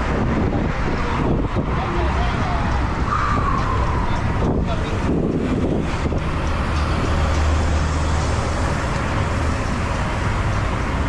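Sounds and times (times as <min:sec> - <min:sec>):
road traffic rush: 0:00.0 - 0:11.0.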